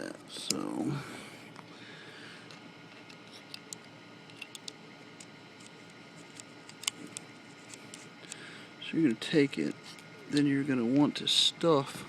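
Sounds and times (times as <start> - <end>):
plastic parts clicking: 2.9 - 5.3.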